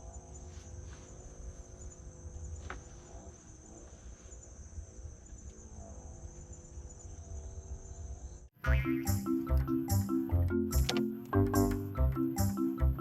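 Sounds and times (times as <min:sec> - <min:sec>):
insects trilling: 0:00.0 - 0:08.5.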